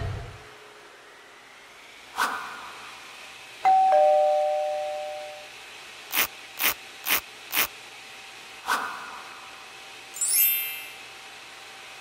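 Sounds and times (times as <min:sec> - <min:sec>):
two-note chime: 0:03.7 - 0:05.5.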